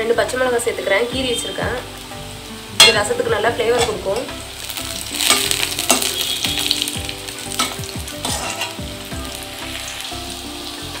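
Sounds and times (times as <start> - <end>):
shallots sizzling in hot oil: 0.0 - 11.0
spatula scraping and tapping pan: 5.2 - 6.8, 7.5 - 8.9.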